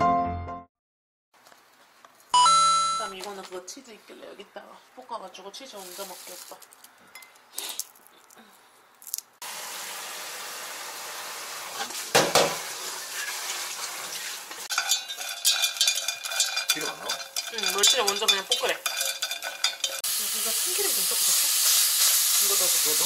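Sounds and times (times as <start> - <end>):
anchovies sizzling in oil: 5.6 - 6.8, 9.1 - 23.0
loud knock: 12.2 - 12.6
steady hiss: 20.1 - 23.0.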